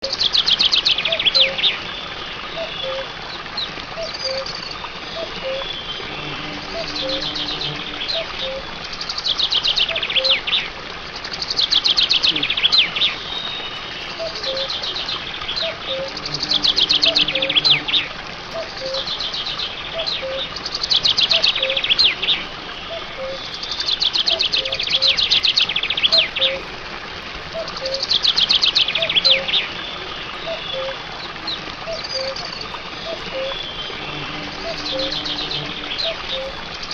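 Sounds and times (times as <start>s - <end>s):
birds chirping in trills: 0.0s - 36.9s
soft low repeated bird notes: 11.9s - 36.9s.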